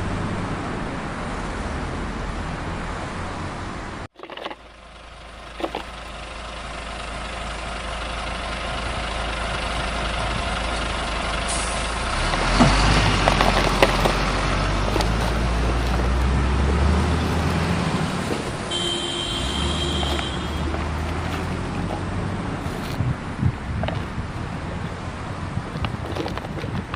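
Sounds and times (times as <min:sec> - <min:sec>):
heavy vehicle engine running: 0:00.0 - 0:26.9
clattering: 0:04.2 - 0:04.7, 0:05.4 - 0:06.2, 0:09.4 - 0:10.9, 0:12.0 - 0:23.0, 0:23.7 - 0:26.9.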